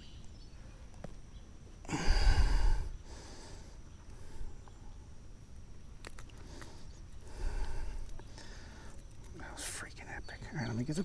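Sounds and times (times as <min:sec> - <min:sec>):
person exhaling heavily: 0:01.9 - 0:04.6.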